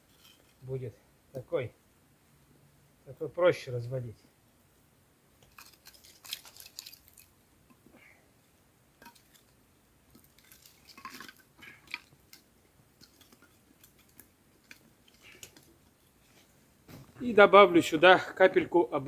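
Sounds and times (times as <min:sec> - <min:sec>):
wooden sticks clicking and knocking: 0:05.4 - 0:07.8, 0:09.0 - 0:16.2.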